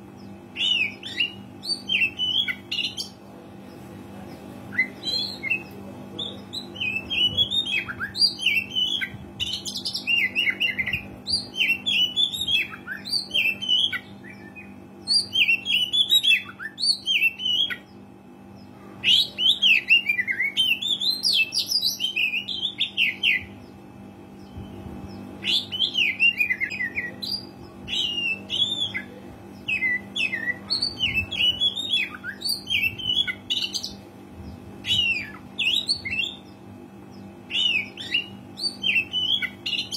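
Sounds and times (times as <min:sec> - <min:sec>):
steady low hum: 0:00.0 - 0:39.9
bird singing whistles and chatter: 0:00.5 - 0:03.2, 0:04.7 - 0:17.9, 0:24.4 - 0:34.0, 0:34.8 - 0:36.5, 0:37.4 - 0:39.9.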